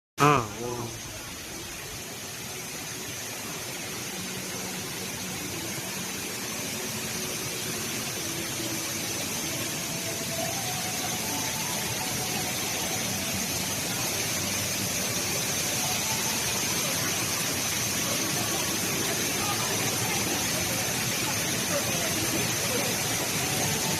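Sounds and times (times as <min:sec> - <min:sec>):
indoor waterfall roaring: 0:00.2 - 0:23.9
faint crowd voices: 0:09.4 - 0:23.9.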